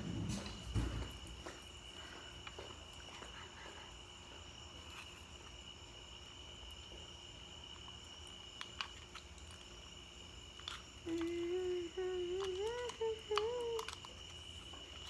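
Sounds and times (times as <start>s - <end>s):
soft low thump: 0.0s - 1.5s
cricket trill: 0.0s - 15.0s.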